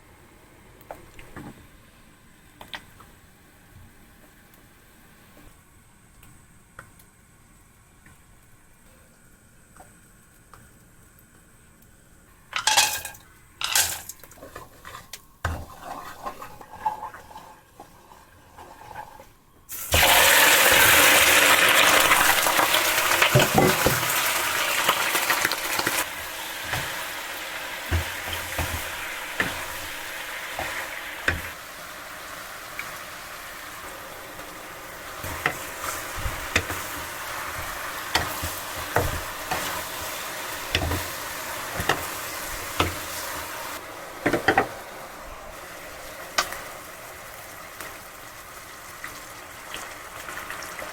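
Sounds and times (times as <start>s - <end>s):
kitchenware clinking: 12.5s - 17.0s, 23.0s - 24.3s, 40.6s - 43.1s
food sizzling in hot oil: 12.5s - 50.9s.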